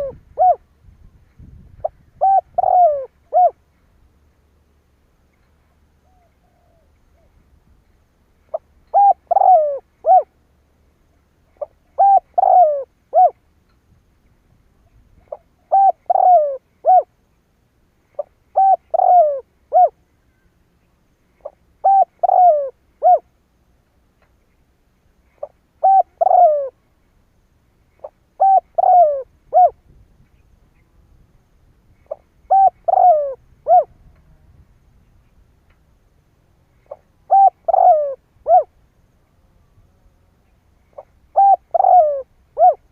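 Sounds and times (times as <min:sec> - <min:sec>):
dove cooing: 0:00.0 - 0:00.7, 0:01.8 - 0:03.6, 0:06.0 - 0:07.4, 0:08.5 - 0:10.4, 0:11.6 - 0:13.4, 0:15.2 - 0:17.1, 0:18.2 - 0:20.0, 0:21.4 - 0:23.3, 0:25.3 - 0:26.8, 0:28.0 - 0:29.8, 0:32.0 - 0:34.4, 0:36.8 - 0:38.8, 0:40.9 - 0:42.9.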